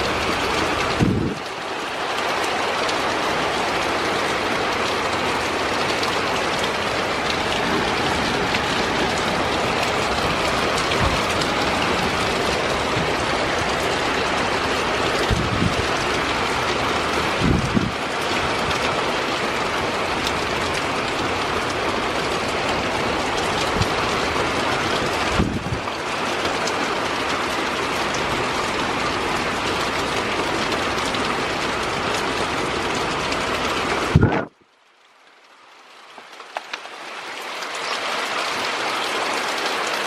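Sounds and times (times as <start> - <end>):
heavy rain pouring: 0.0 - 40.0
low thumps: 15.2 - 16.2, 17.4 - 18.0, 23.6 - 24.3, 25.3 - 25.9.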